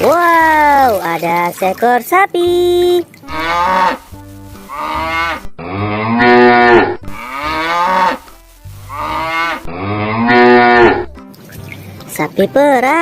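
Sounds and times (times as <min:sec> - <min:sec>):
cow mooing: 0:03.3 - 0:04.1, 0:04.7 - 0:08.3, 0:08.9 - 0:11.1.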